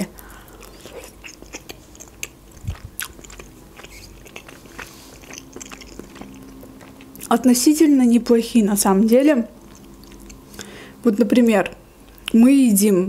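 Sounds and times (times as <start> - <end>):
chewing with wet mouth clicks: 0.2 - 7.6, 9.6 - 10.8, 12.0 - 12.4.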